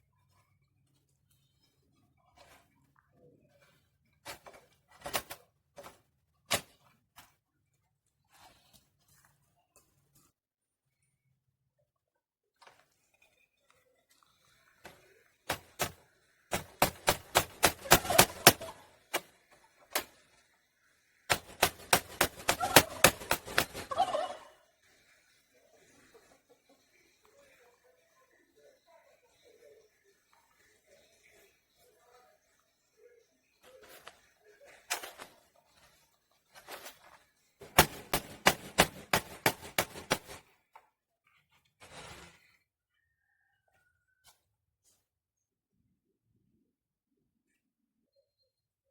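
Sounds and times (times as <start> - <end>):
hammer striking a nail: 16.5 - 18.7, 21.3 - 23.8, 37.6 - 40.4
turkey gobbling: 17.7 - 18.9, 22.2 - 24.6.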